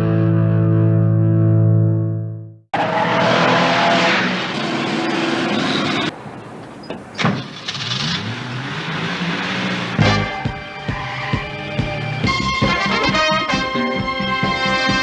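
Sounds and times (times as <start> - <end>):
car engines accelerating hard: 2.8 - 6.2, 7.4 - 15.0.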